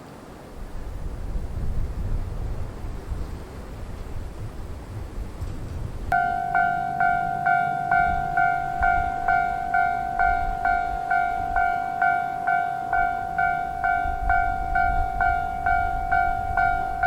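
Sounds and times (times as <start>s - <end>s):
wind noise on microphone: 0.0s - 17.0s
two-tone crossing warning bell: 6.1s - 17.0s.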